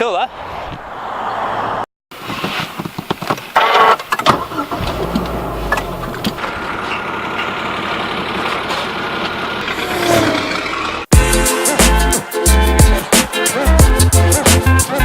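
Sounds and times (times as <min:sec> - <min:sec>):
traffic noise: 0:00.0 - 0:11.1
car engine running: 0:04.4 - 0:11.1.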